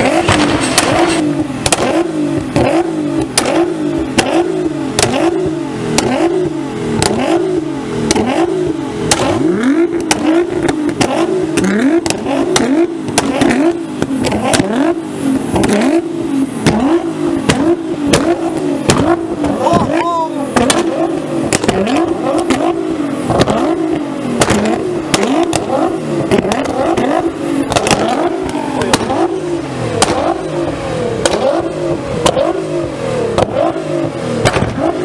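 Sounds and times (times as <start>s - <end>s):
exhaust pops and cracks: 0.0s - 6.2s, 9.1s - 14.8s, 16.6s - 29.3s, 30.0s - 30.5s, 31.2s - 32.6s, 34.4s - 35.0s
car engine revving: 0.0s - 35.0s.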